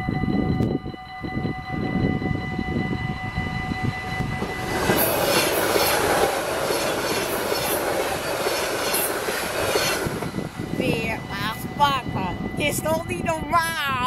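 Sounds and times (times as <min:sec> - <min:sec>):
steady high multi-pitch tone: 0:00.0 - 0:14.0
train wheels rushing on rails: 0:03.8 - 0:11.7.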